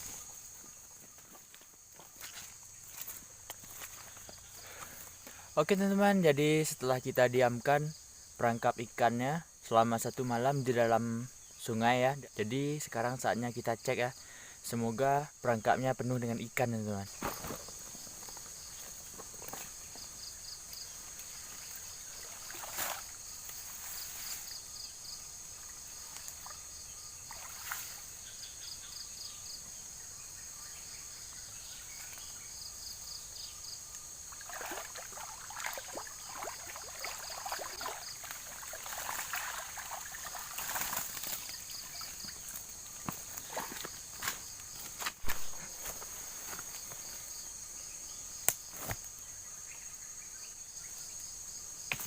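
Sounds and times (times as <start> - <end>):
insects chirring: 0.0 - 52.0
water sloshing and splashing: 21.7 - 23.2, 27.3 - 28.0, 34.3 - 42.6.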